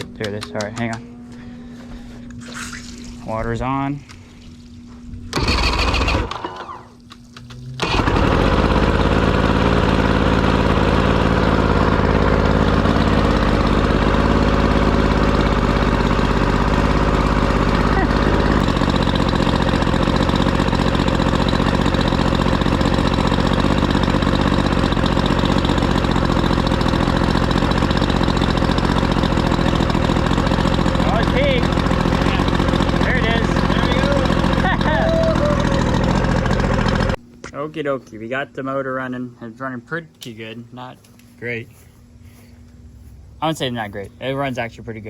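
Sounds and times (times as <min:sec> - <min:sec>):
two-stroke outboard motor running: 0:05.3 - 0:07.0, 0:07.8 - 0:37.2.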